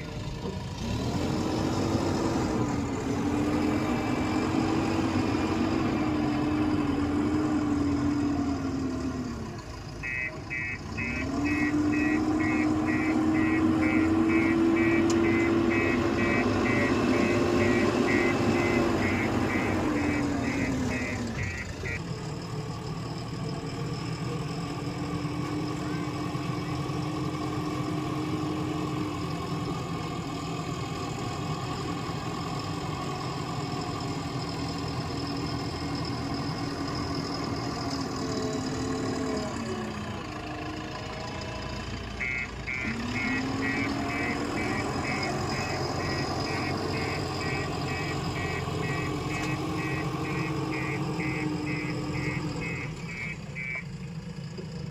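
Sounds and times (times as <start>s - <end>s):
backhoe diesel engine running: 0.0s - 54.9s
fast high-pitched beeping: 10.1s - 22.0s.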